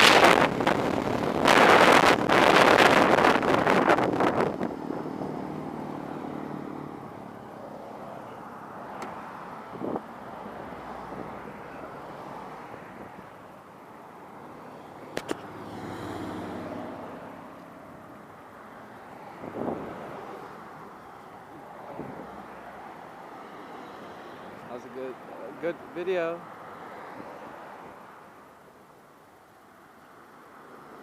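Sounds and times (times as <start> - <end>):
wind noise on microphone: 0.0 - 5.6, 9.6 - 10.1, 19.3 - 20.2
vehicle passing: 0.0 - 13.2, 14.1 - 28.1.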